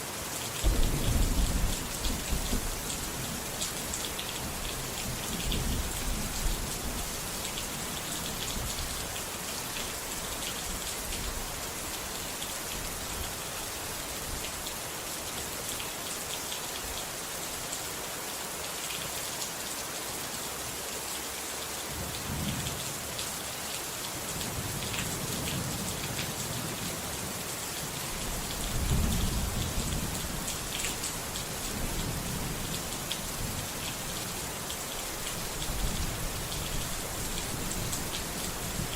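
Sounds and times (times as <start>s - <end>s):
heavy rain falling: 0.0s - 38.9s
thunder rumbling: 0.6s - 3.0s.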